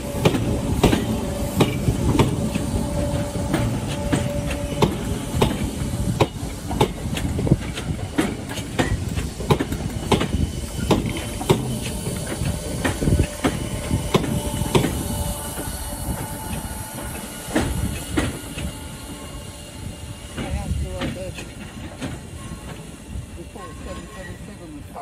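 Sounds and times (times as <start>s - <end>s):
train wheels clicking over rail joints: 0.0s - 24.5s
low train rumble: 0.0s - 25.0s.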